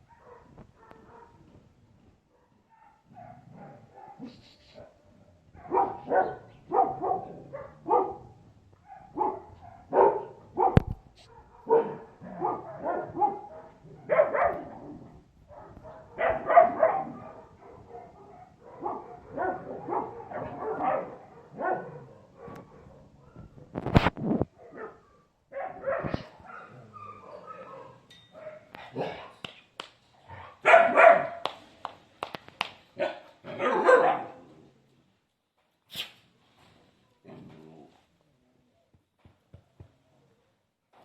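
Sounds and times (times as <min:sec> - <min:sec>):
dogs barking: 0:00.0 - 0:01.4, 0:02.4 - 0:04.4, 0:05.6 - 0:14.9, 0:15.5 - 0:23.5, 0:24.6 - 0:29.3, 0:30.4 - 0:31.5, 0:33.0 - 0:34.4.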